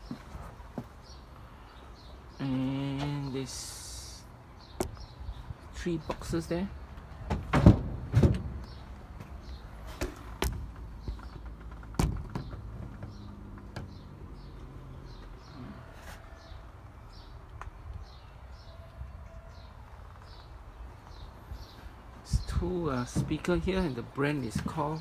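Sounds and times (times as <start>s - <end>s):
bird chirping: 1.0s - 7.3s, 8.6s - 25.0s
sharp knocks and bumps: 4.8s - 5.1s, 7.2s - 14.2s, 23.0s - 23.8s.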